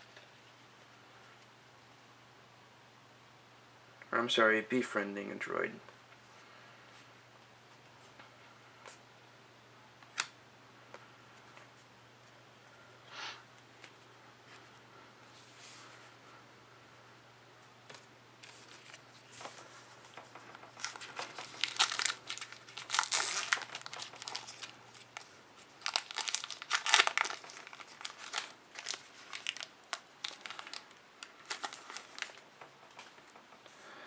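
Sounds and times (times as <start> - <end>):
plastic wrapper tearing and crinkling: 20.6 - 32.4.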